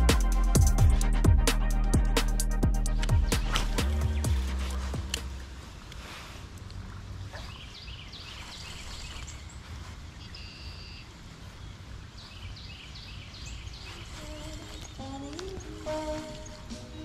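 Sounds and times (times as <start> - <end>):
songbird chirping: 0.0 - 17.0.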